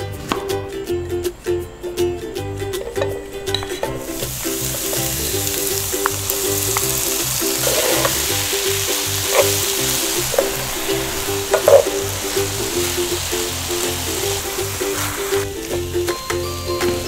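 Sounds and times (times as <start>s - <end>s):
light background music: 0.0s - 17.0s
vegetables sizzling in oil: 3.8s - 17.0s.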